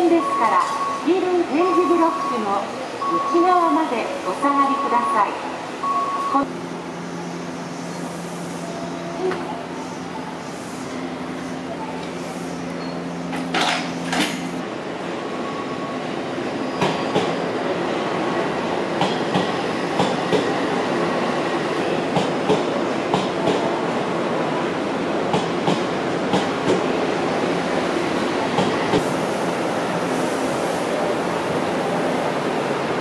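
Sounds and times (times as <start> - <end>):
electric train rumble: 5.4 - 15.7.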